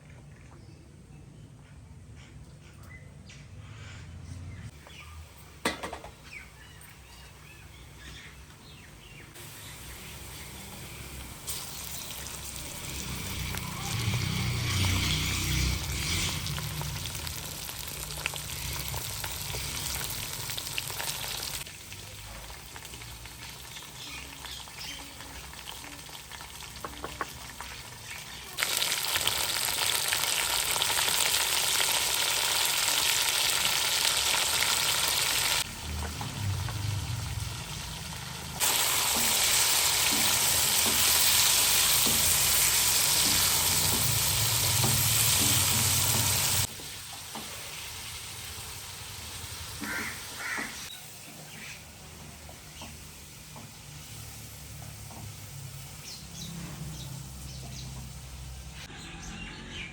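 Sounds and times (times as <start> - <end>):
chicken sizzling in hot oil: 9.3 - 58.9.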